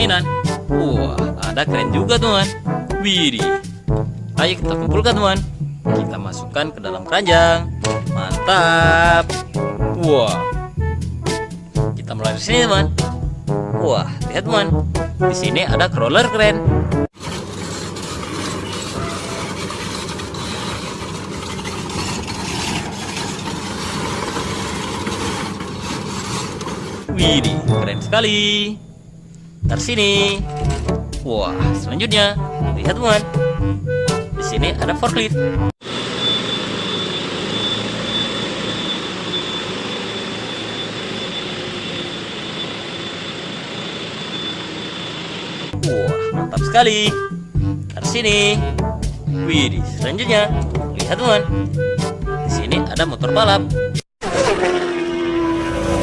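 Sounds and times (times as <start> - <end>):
toy crawler vehicle rumble and clatter: 17.1 - 27.1
high constant whine: 17.2 - 31.3, 35.9 - 45.8.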